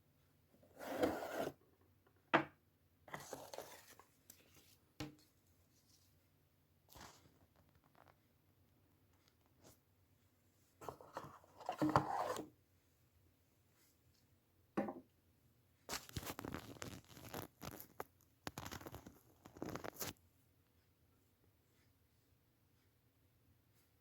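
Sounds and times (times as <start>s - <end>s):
paper packaging rustling and tearing: 15.9s - 20.2s.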